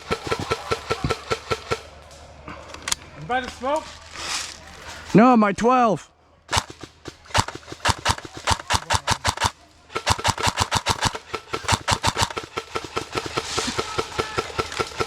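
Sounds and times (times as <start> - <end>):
airsoft rifle shots: 0.0 - 2.0, 6.5 - 15.0.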